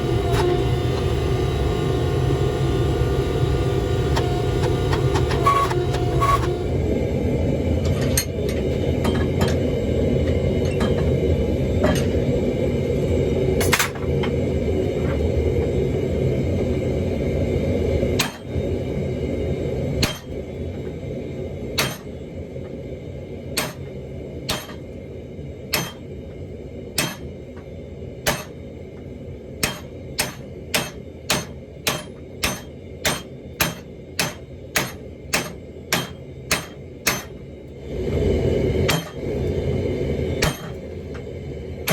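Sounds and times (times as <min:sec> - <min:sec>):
hammer striking metal on anvil: 0:18.2 - 0:18.5, 0:20.0 - 0:20.4, 0:21.8 - 0:22.1, 0:23.6 - 0:23.9, 0:24.5 - 0:24.8, 0:25.7 - 0:26.1, 0:27.0 - 0:27.3, 0:28.2 - 0:28.6, 0:29.6 - 0:37.4, 0:38.9 - 0:39.2, 0:40.4 - 0:40.8.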